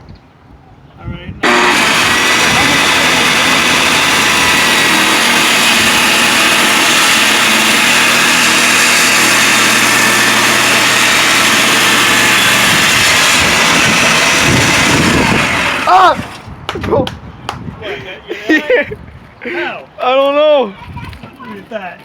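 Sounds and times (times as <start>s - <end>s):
circular saw cutting wood: 1.4s - 16.6s.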